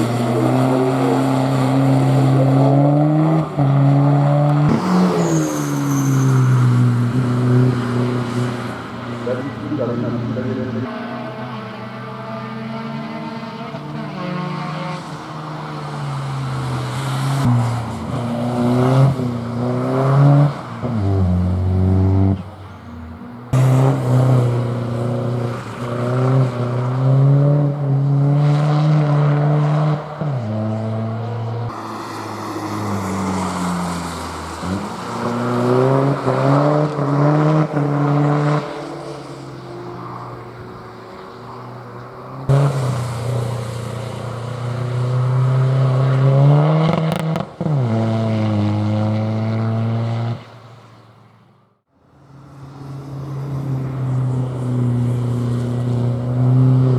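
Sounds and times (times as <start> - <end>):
race car engine revving: 0.0 - 39.4, 40.6 - 50.4.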